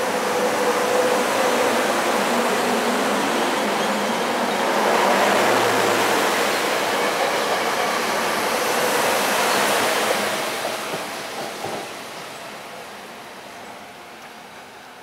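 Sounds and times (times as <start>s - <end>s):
train wheels rushing on rail: 0.0s - 15.0s.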